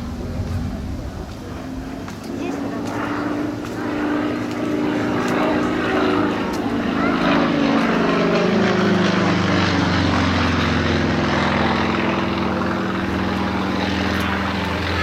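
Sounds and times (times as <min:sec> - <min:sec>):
propeller airplane passing by: 0:00.0 - 0:15.0.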